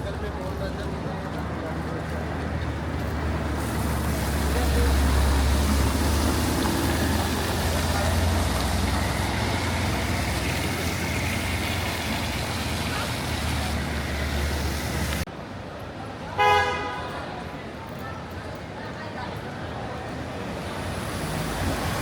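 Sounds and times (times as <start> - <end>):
heavy vehicle engine rumble: 0.0 - 15.4
rain and wet tyres hissing: 3.0 - 15.3, 20.4 - 22.0.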